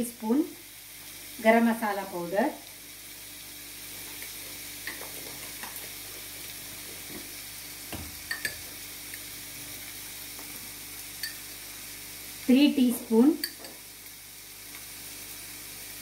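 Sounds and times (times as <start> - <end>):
masala sizzling in oil: 0.0 - 16.0.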